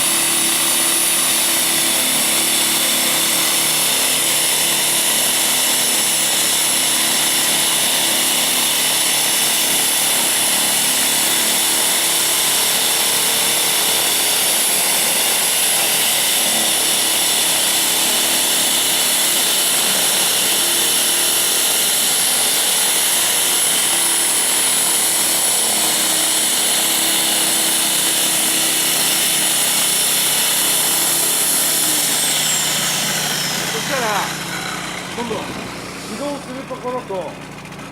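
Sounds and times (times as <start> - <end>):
electric snowblower running: 0.0 - 37.9
high motor whine: 18.1 - 37.9.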